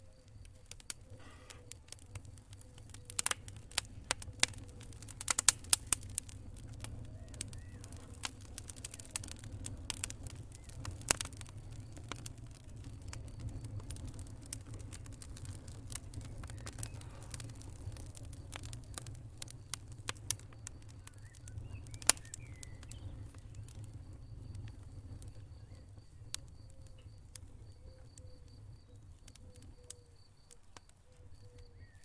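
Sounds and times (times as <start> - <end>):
low rumble of flames: 0.0 - 32.0
wood fire crackling and popping: 0.0 - 32.0.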